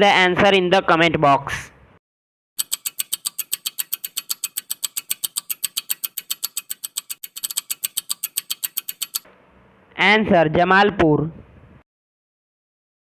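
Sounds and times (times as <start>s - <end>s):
rapid clock-like ticking: 2.6s - 9.3s.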